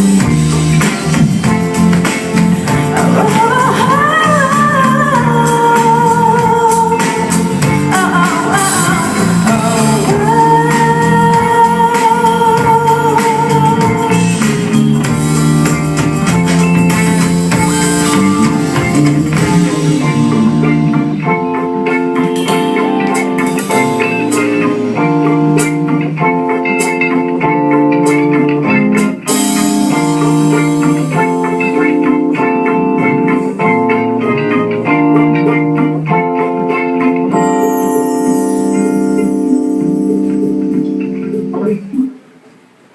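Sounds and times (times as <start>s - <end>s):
electric guitar: 0.0s - 42.6s
person singing long notes: 2.8s - 14.6s.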